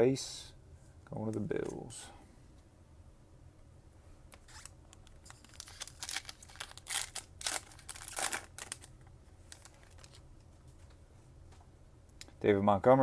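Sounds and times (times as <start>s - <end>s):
packaging crinkling and rustling: 4.4s - 10.9s.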